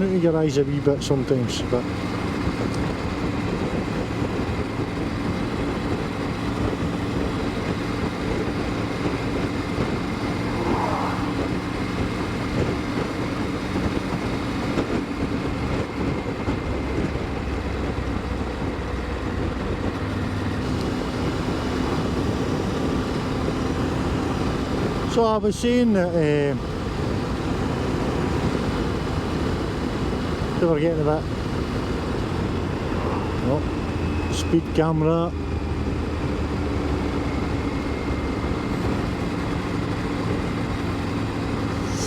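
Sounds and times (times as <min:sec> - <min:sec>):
wind and road noise: 0:00.0 - 0:42.0
motorcycle engine running: 0:01.6 - 0:25.1.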